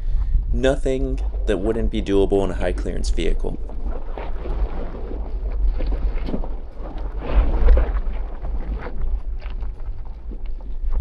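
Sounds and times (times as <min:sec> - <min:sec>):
vehicle low rumble: 0:00.0 - 0:11.0
wind buffeting microphone: 0:00.0 - 0:11.0
knocks and crunches: 0:03.7 - 0:11.0.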